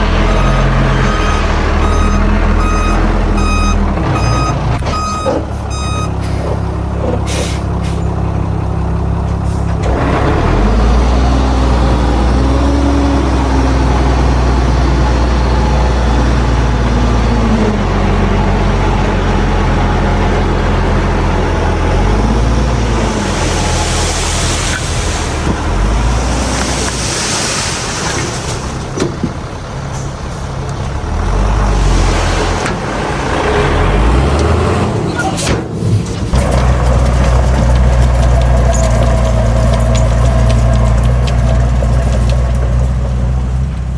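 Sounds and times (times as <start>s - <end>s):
heavy diesel machinery revving: 0.0s - 43.9s.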